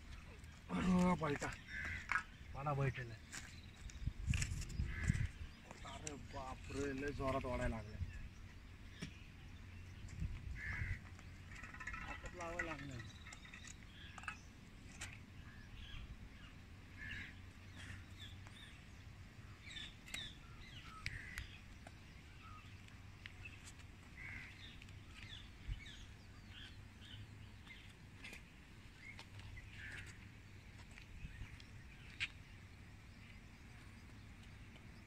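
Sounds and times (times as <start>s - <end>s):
birds chirping: 0.0s - 35.0s.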